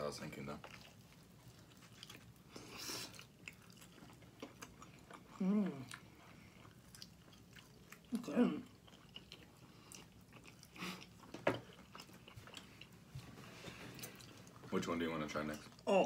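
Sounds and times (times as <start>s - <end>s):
wet chewing and smacking: 0.2s - 14.7s
person humming: 5.4s - 5.9s.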